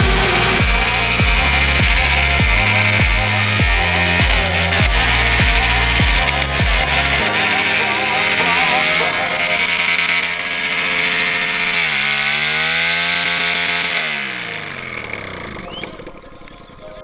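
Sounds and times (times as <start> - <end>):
motorcycle engine revving: 0.0 - 16.8.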